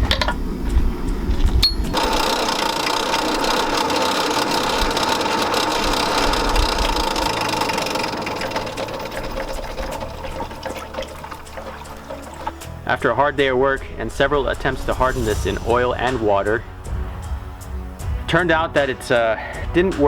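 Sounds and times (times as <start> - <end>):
small machine motor whine: 1.9 - 10.2.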